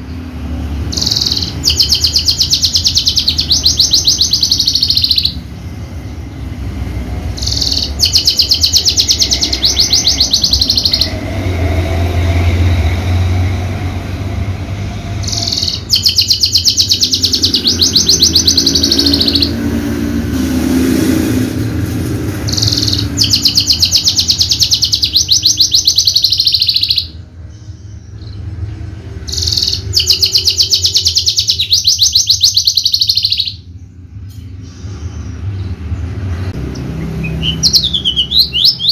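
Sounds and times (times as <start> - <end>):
bushlark singing rapid high notes: 0.8 - 6.1, 7.3 - 11.3, 15.2 - 19.8, 22.4 - 28.4, 29.2 - 33.8, 36.7 - 38.9.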